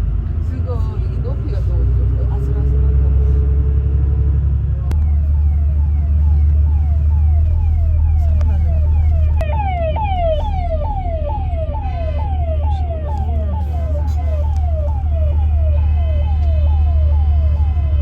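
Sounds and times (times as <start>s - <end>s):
engine and road rumble: 0.0s - 18.0s
electronic siren whooping: 4.8s - 18.0s.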